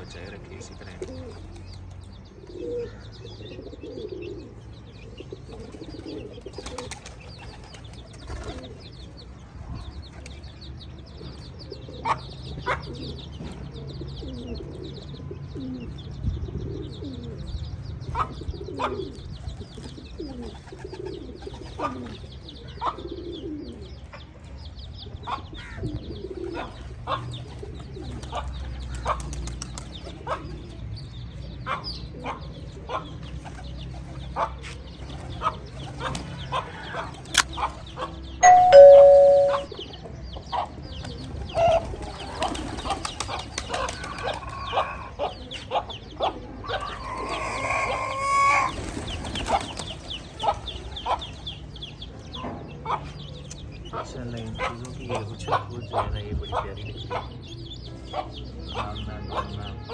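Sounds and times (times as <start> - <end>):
pigeons cooing: 0.0 - 59.9
high bird chirps: 38.4 - 40.0.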